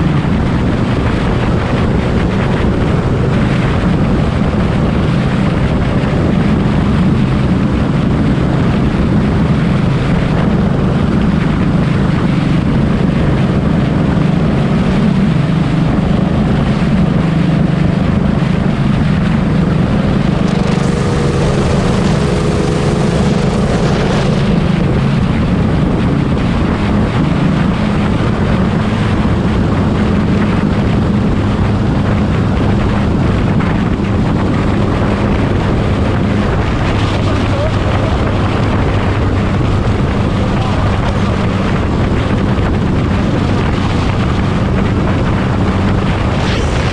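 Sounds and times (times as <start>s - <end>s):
motorcycle engine drone: 0.0s - 46.9s
wind rush on microphone: 0.0s - 46.9s.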